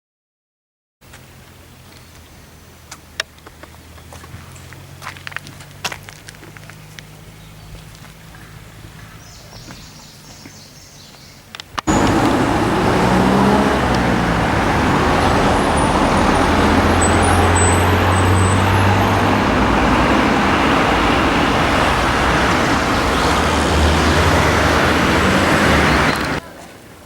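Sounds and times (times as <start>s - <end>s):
small birds chirping: 6.8s - 26.4s.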